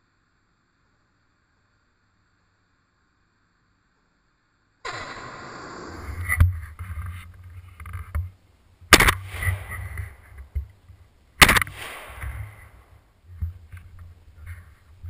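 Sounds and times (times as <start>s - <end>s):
gun handling rumble: 6.5s - 15.0s
shotgun shots: 8.9s - 10.4s, 11.4s - 12.9s.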